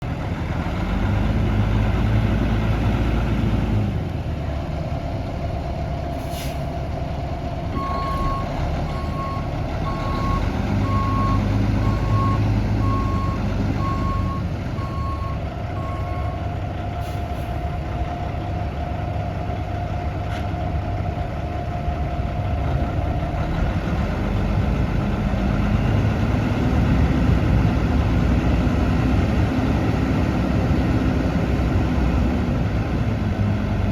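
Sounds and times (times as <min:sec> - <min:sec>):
diesel truck engine revving: 0:00.0 - 0:33.9
air brake hisses: 0:06.1 - 0:06.7, 0:17.0 - 0:17.6
reversing beeper: 0:07.8 - 0:16.4.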